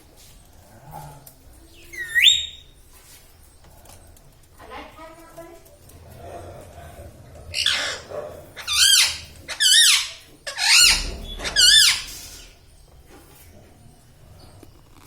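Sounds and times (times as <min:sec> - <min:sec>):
parrot high-pitched calls: 0:01.8 - 0:02.7, 0:07.5 - 0:12.6.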